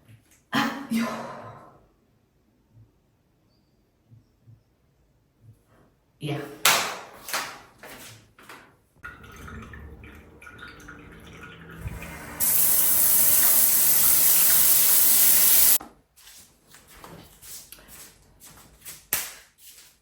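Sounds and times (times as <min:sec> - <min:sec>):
tap running into a sink: 0:09.0 - 0:15.8.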